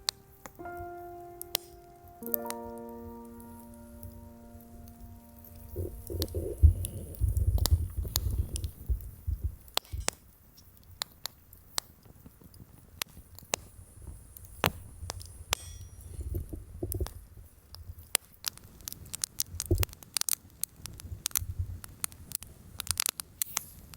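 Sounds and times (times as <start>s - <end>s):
low rumbling: 0.0s - 9.6s
campfire crackling and popping: 1.4s - 15.6s, 16.9s - 23.9s.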